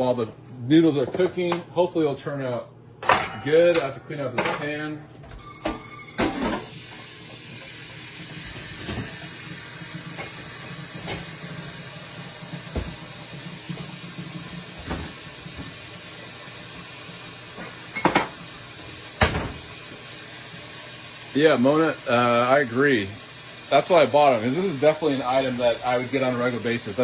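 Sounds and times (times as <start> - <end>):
microwave humming: 0.0 - 27.0
pan and utensils clinking: 3.0 - 4.7, 17.5 - 19.9.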